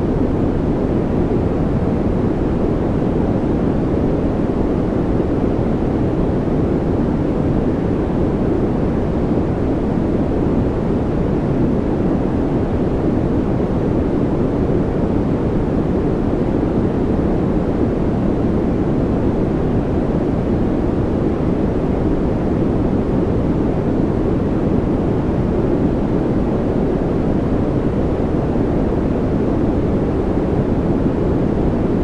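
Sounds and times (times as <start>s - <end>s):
deep white noise: 0.0s - 32.0s.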